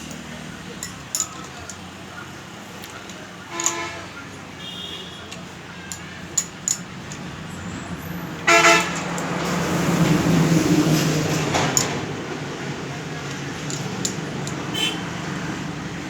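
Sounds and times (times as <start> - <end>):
sharp metallic clicks: 0.0 - 2.0, 2.7 - 7.6, 8.4 - 10.0, 13.2 - 15.1
vehicle horn toots: 3.5 - 5.5, 8.4 - 9.2, 14.7 - 15.3.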